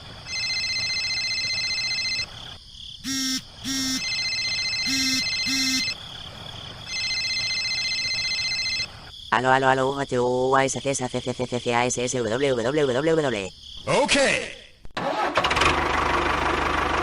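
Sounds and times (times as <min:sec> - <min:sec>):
short buzzy beeps: 0:03.0 - 0:06.0
steady high-pitched electronic tone: 0:03.0 - 0:06.0.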